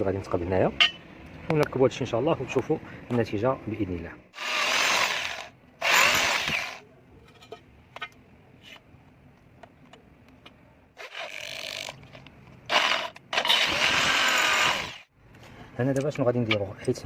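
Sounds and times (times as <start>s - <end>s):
power tool bursts: 4.4s - 6.8s, 12.7s - 15.1s.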